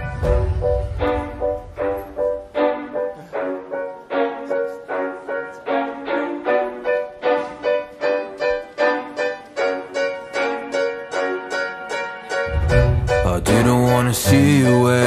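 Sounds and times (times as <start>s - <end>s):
plucked notes pop song intro: 12.4s - 15.0s.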